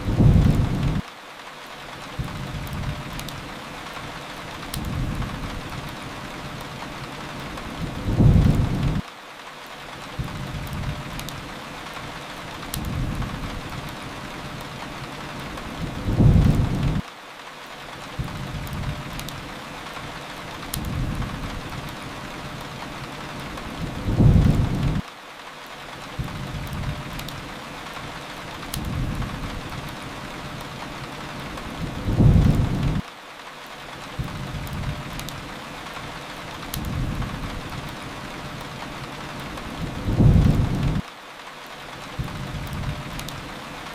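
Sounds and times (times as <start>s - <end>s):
low thunder rumble: 0.0s - 1.0s, 7.8s - 9.0s, 15.8s - 17.0s, 23.7s - 25.0s, 31.7s - 33.0s, 39.6s - 41.0s
fireplace crackles: 0.0s - 43.9s
steady rain hiss: 0.0s - 43.9s.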